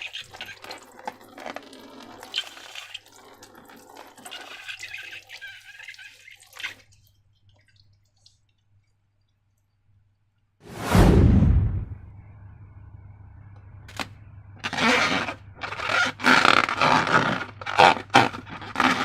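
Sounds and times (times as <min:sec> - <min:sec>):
small clicks and drips: 0:00.0 - 0:10.5.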